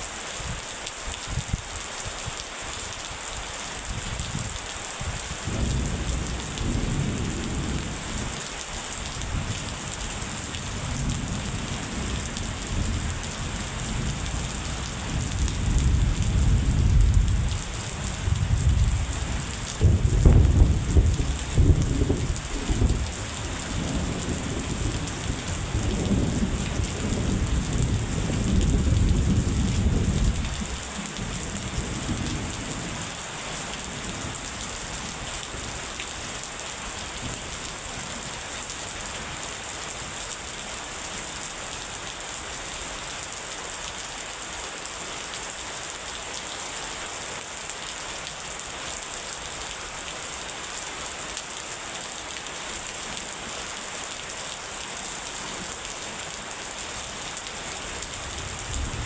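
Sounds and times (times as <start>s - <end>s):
heavy rain: 0.0s - 59.0s
rolling thunder: 5.4s - 8.4s, 9.1s - 32.6s.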